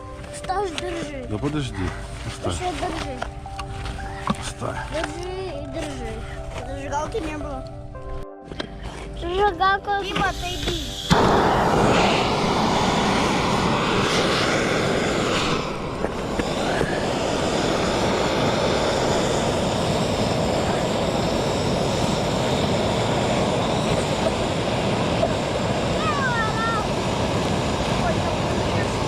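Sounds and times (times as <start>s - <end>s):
wind rushing on microphone: 11.1s - 29.0s.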